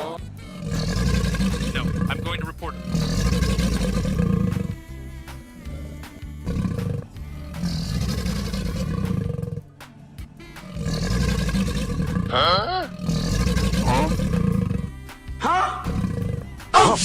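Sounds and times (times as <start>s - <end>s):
background music: 0.0s - 17.0s
monster roaring: 0.5s - 4.7s, 5.7s - 9.6s, 10.6s - 14.9s.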